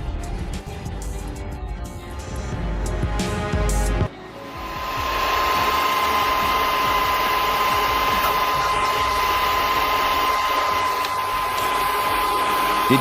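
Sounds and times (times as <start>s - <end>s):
constant high whine: 4.4s - 13.0s
machinery running steadily: 4.4s - 13.0s.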